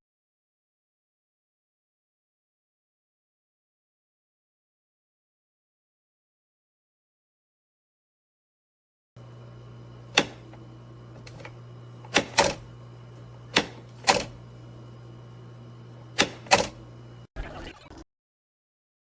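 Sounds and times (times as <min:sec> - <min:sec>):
low electrical hum: 0:09.2 - 0:17.3.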